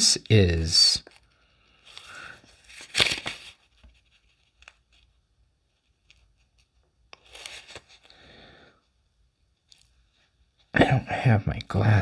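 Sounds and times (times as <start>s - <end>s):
cards sliding swish: 1.8s - 3.6s.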